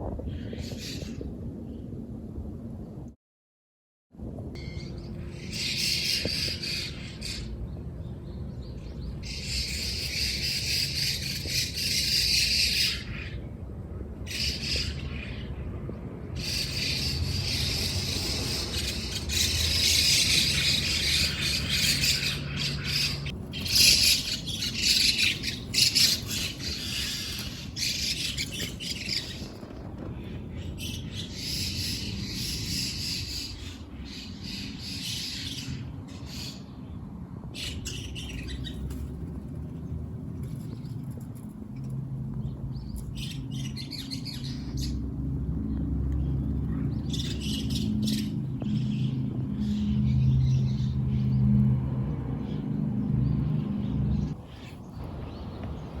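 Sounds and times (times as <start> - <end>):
small birds chirping: 14.3 - 51.6, 52.4 - 56.0.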